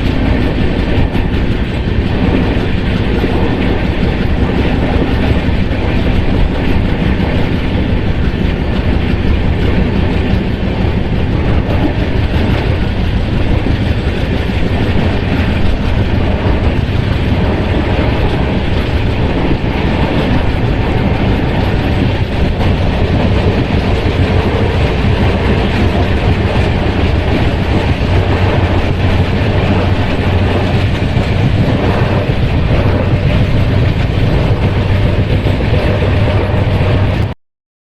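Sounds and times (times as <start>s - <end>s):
train rumbling on rails: 0.0s - 37.4s.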